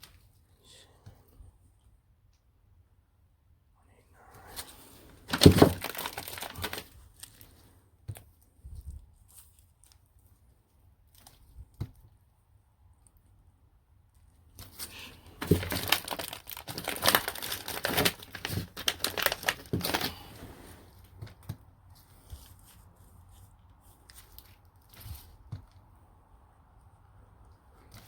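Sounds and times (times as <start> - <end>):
packaging crinkling and tearing: 4.5 - 7.6, 14.6 - 20.4.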